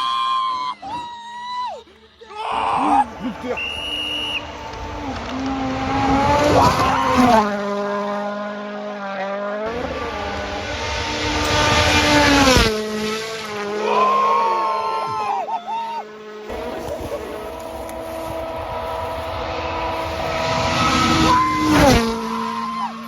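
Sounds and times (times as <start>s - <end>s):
tyre squeal: 0.0s - 5.2s, 6.4s - 7.5s, 13.8s - 23.0s
vehicle engine revving: 3.0s - 14.0s, 16.1s - 23.0s.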